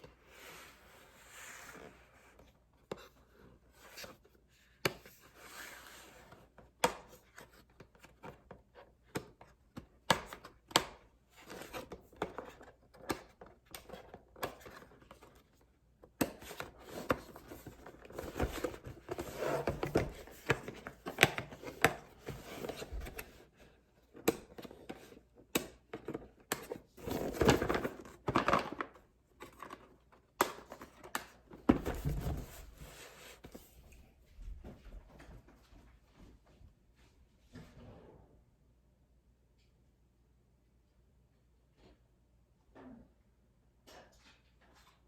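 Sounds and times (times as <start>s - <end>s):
packaging rustling and scraping: 16.6s - 23.6s.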